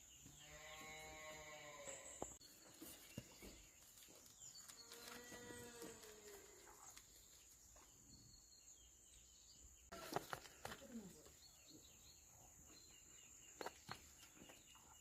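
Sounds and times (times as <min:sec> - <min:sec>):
distant farm animal calling: 0:00.3 - 0:02.4, 0:04.8 - 0:06.9.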